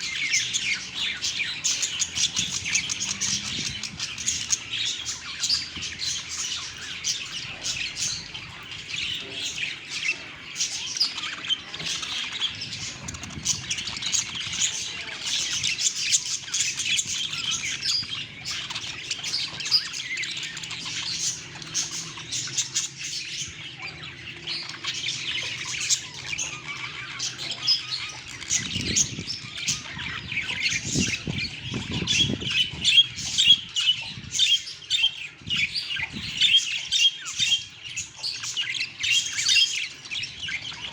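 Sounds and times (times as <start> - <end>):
parrots chattering: 0.0 - 40.9.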